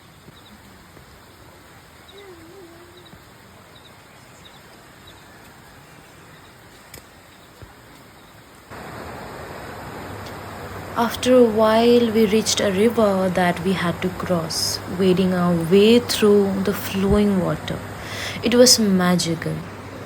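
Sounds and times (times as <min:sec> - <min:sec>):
faint bird chirps: 0:00.0 - 0:08.5
stream running over rocks: 0:00.0 - 0:20.0.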